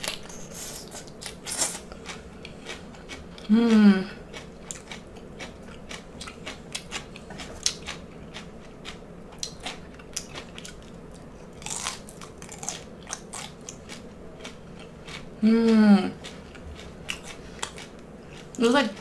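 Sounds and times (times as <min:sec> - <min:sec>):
crunchy chewing: 0:00.0 - 0:03.5, 0:04.2 - 0:19.0.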